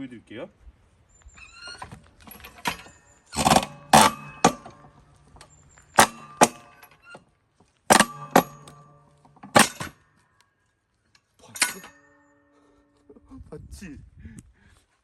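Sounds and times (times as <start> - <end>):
metallic ring: 1.1 - 7.2, 7.9 - 10.2, 11.5 - 13.1
splitting tool striking logs: 2.6 - 5.0, 6.0 - 6.8, 7.9 - 10.0.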